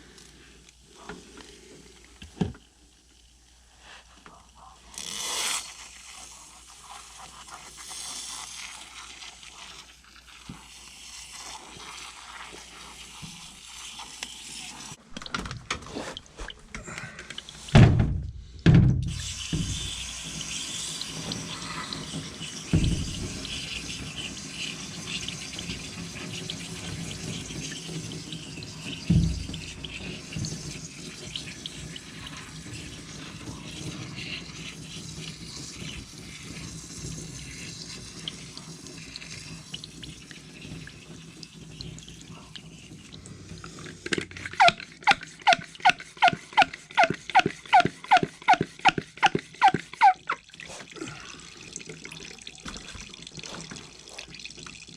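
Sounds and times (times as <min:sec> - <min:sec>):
water spraying onto coil: 0:04.8 - 0:15.0, 0:19.0 - 0:54.9
sharp knocks: 0:17.8 - 0:19.9.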